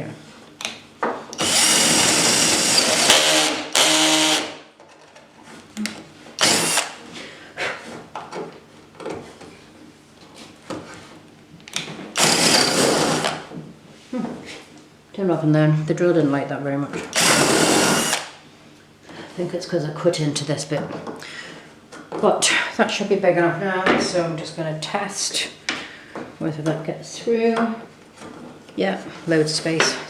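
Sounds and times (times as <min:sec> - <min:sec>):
drill clicks: 0:01.4 - 0:04.6, 0:06.4 - 0:07.0, 0:12.2 - 0:13.4, 0:17.1 - 0:18.4
power drill boring wood: 0:01.4 - 0:04.6, 0:06.4 - 0:07.0, 0:12.2 - 0:13.5, 0:17.1 - 0:18.4.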